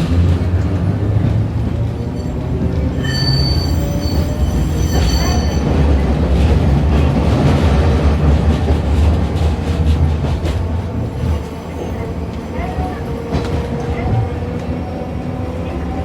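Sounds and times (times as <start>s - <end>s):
tram running gear rumble: 0.0s - 16.0s
wheels squealing: 1.8s - 6.0s.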